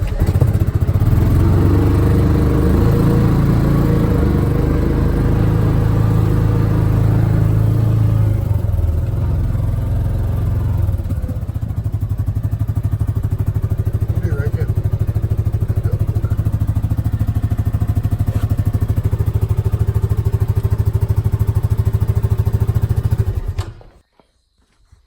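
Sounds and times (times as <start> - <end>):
vehicle engine idling: 0.0 - 24.0.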